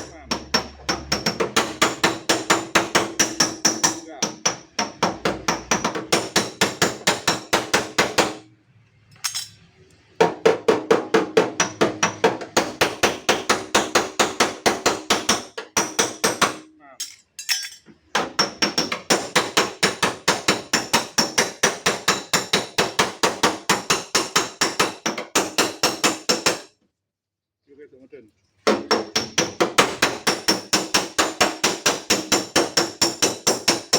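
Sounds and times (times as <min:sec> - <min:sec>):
hammer tapping on sheet metal: 0:00.0 - 0:08.4, 0:10.2 - 0:16.8, 0:18.1 - 0:26.7, 0:28.7 - 0:33.9.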